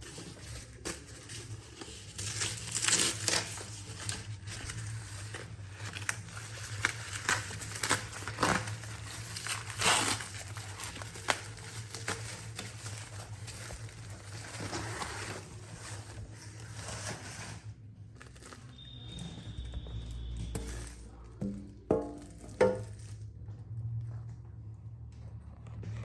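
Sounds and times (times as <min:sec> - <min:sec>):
packaging crinkling: 0:00.0 - 0:23.2.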